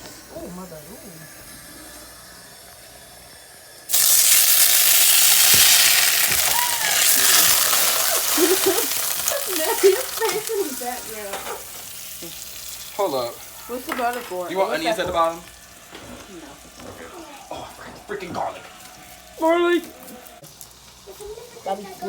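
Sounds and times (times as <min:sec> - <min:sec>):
butter sizzling in a pan: 0:00.0 - 0:17.5.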